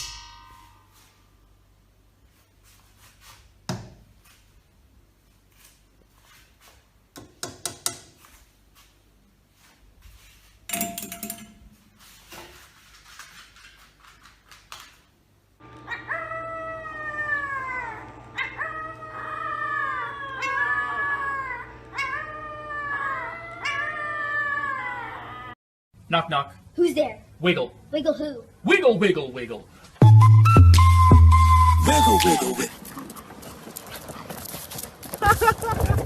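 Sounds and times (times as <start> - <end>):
knocks and clatters: 10.7 - 12.6
dog howling: 15.8 - 25.6.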